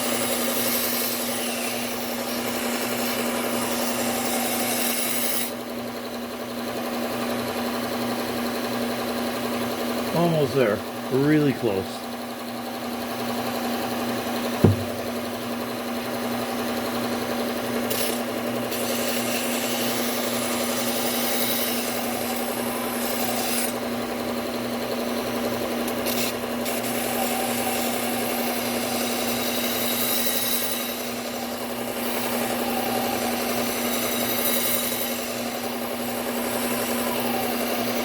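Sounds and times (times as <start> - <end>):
belt sander humming: 9.5 - 17.9
sharp knock: 14.6 - 15.2.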